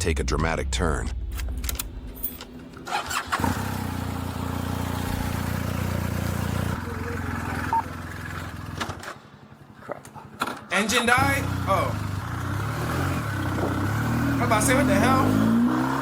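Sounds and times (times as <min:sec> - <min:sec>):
motorcycle engine starting and idling: 0:01.2 - 0:15.4.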